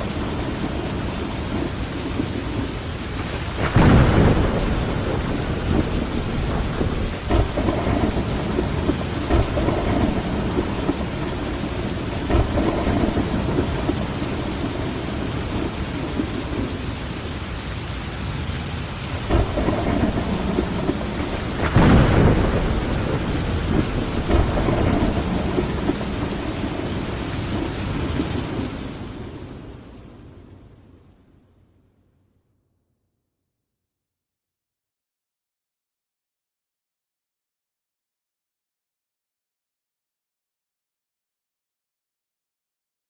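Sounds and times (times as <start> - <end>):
thunder clap: 0.0 - 17.7, 18.7 - 30.3
thunder rumbling: 0.0 - 31.1
steady rain: 0.0 - 32.3.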